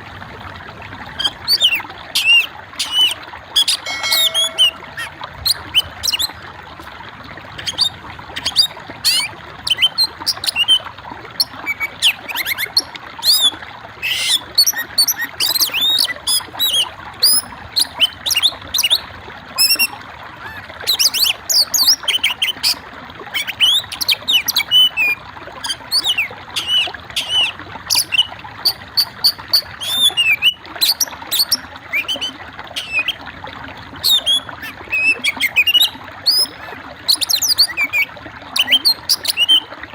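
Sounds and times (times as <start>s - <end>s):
songbird singing: 1.2s - 6.3s, 23.4s - 33.2s, 34.0s - 39.6s.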